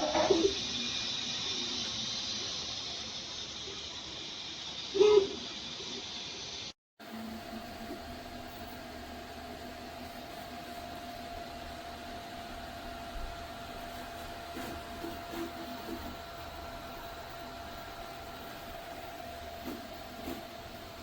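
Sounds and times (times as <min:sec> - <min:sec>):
three d printer fan whirring: 0:07.0 - 0:21.0.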